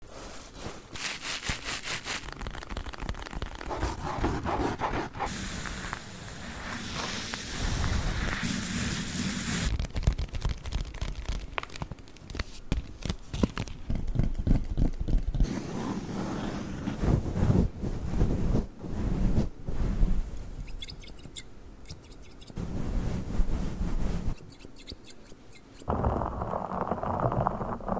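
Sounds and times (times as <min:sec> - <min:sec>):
hissy rustle: 0:05.2 - 0:09.7, 0:22.6 - 0:24.5.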